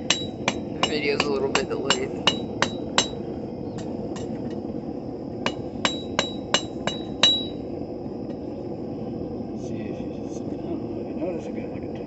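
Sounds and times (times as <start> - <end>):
hammer striking steel rod on anvil: 0.0 - 3.2, 5.5 - 7.6.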